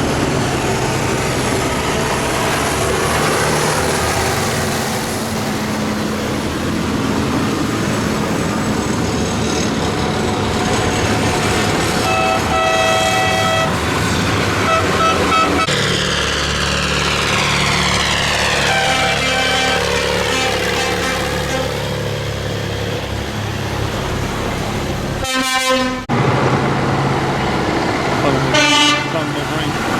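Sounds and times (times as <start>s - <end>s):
tractor engines driving past: 0.0s - 29.9s
vehicle horn blasts: 12.0s - 13.8s, 14.6s - 15.7s, 18.6s - 21.8s, 25.2s - 26.1s, 28.5s - 29.3s.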